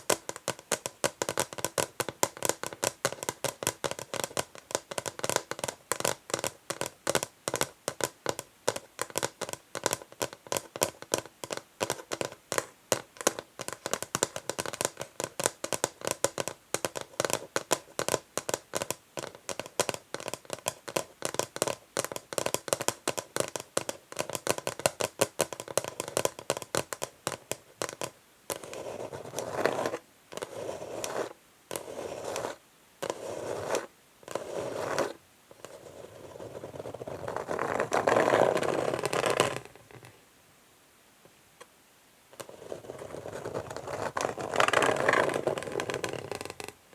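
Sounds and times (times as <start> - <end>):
fingernails scratching wood: 28.6 - 35.2.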